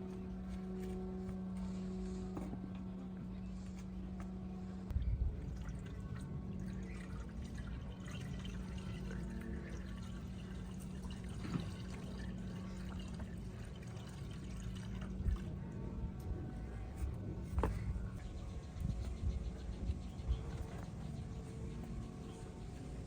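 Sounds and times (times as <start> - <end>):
steady low hum: 0.0 - 23.0
liquid pouring and trickling: 5.2 - 15.8.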